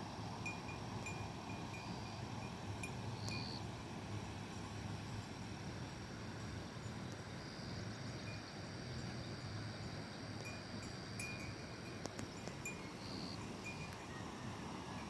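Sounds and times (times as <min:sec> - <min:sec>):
thin high steady tone: 0:10.4 - 0:15.0.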